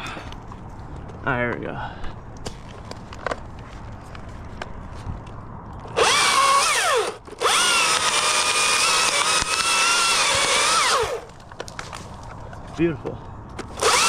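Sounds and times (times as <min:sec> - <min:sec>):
chainsaw revving: 0:06.0 - 0:11.3, 0:13.7 - 0:14.0.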